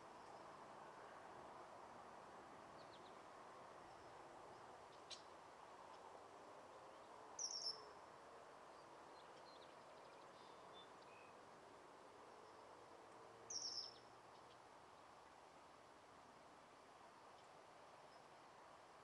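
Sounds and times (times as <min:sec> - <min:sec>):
faint steady hiss: 0:00.0 - 0:19.0
small bird chirps: 0:07.4 - 0:07.8, 0:13.5 - 0:14.6.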